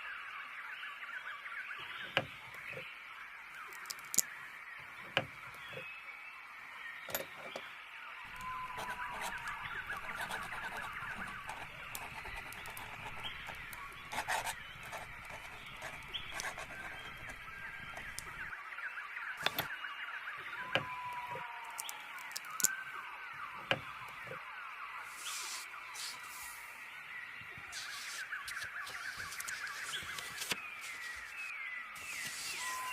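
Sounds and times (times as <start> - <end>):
whistled bird calls: 0.0 - 32.9
quill pen scratching paper: 8.3 - 18.5, 27.8 - 31.4.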